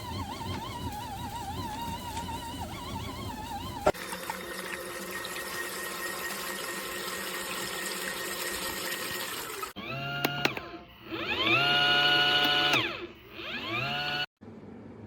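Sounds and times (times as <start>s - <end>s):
small electric motor running: 0.0s - 4.0s, 5.3s - 14.3s
water churning in tub: 0.0s - 9.8s.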